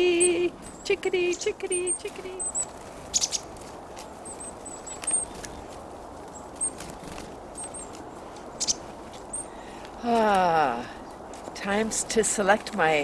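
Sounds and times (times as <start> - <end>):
chickadees high thin calls: 0.0 - 3.5, 4.1 - 5.7, 6.3 - 9.8.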